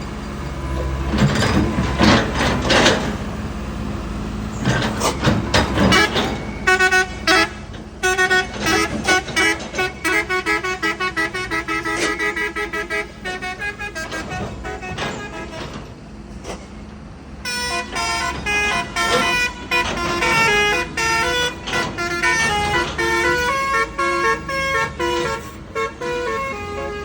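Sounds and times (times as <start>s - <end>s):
heavy vehicle engine running: 0.0s - 27.0s
multi-tone horn toots: 4.6s - 16.6s, 17.4s - 27.0s.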